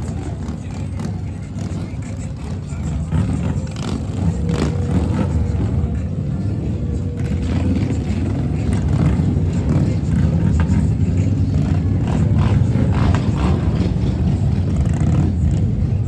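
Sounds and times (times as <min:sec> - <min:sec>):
vehicle engines rumbling: 0:00.0 - 0:16.0.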